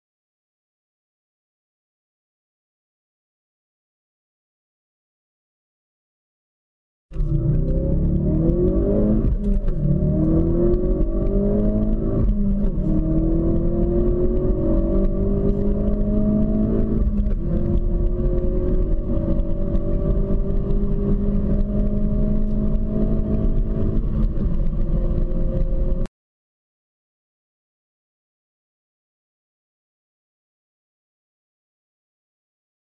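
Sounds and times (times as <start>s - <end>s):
car engine accelerating: 7.1s - 26.1s.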